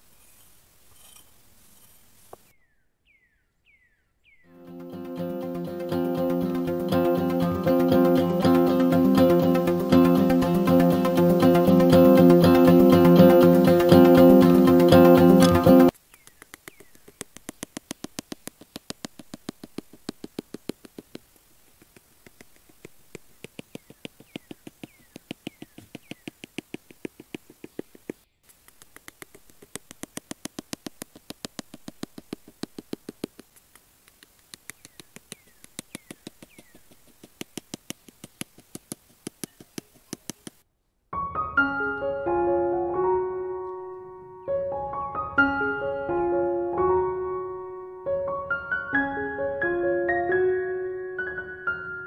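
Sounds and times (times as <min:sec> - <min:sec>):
piano music: 0:04.5 - 0:15.9, 0:41.2 - 0:52.0
fast even clicking: 0:05.4 - 0:40.6.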